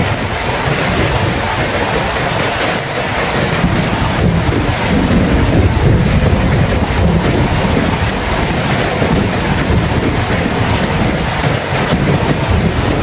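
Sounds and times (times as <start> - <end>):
steady rain falling: 0.0 - 13.0
low rumble: 3.6 - 13.0.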